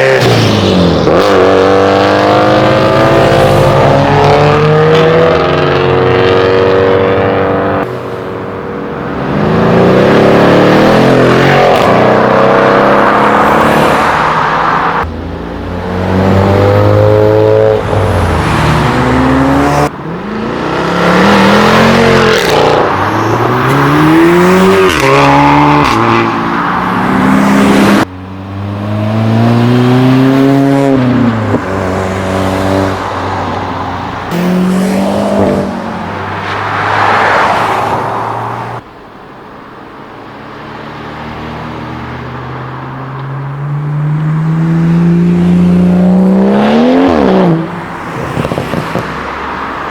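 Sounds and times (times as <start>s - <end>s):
car engines revving: 0.0s - 49.9s.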